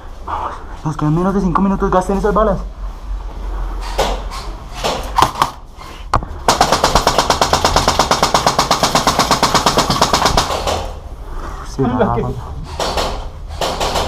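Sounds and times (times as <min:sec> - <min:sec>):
airsoft gun full-auto burst: 0:06.5 - 0:10.9.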